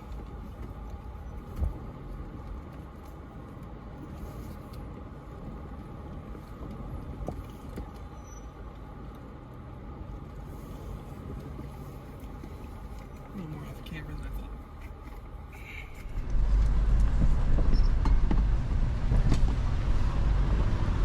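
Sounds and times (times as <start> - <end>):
truck engine at low revs: 0.0 - 21.0.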